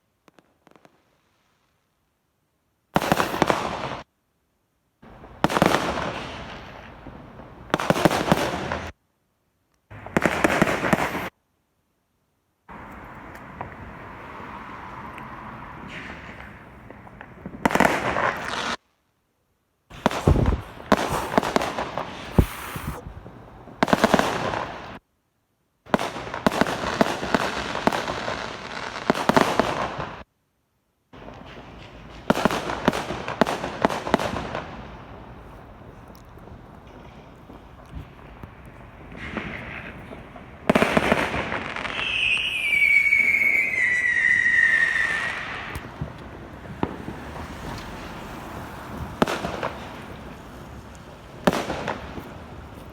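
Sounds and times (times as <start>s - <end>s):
fireworks cracking and banging: 3.0s - 4.1s, 5.1s - 9.0s, 9.9s - 11.4s, 12.7s - 18.8s, 19.9s - 25.0s, 25.9s - 30.3s, 31.2s - 52.9s
deep firework thumps: 20.0s - 23.3s
firework whistle falling in pitch: 41.8s - 45.8s.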